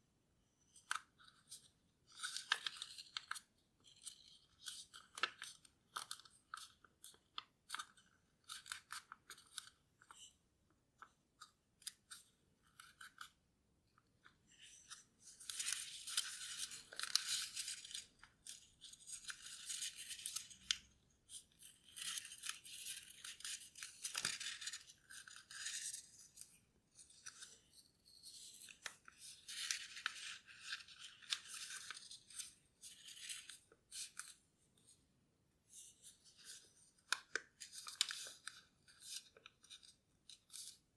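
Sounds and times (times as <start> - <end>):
paper rustling and crinkling: 14.2 - 34.4, 35.7 - 40.8.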